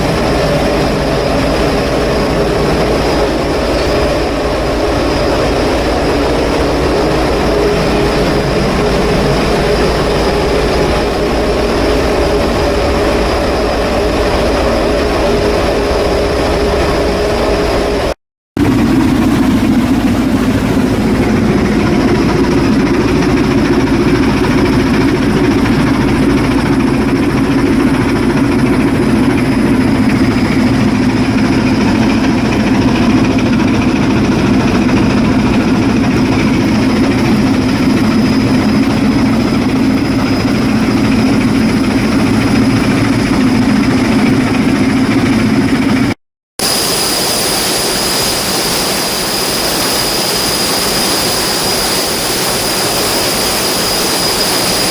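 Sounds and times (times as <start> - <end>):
thin high whine: 0.0 - 18.9, 46.6 - 54.9
ship diesel engine drone: 0.0 - 54.9.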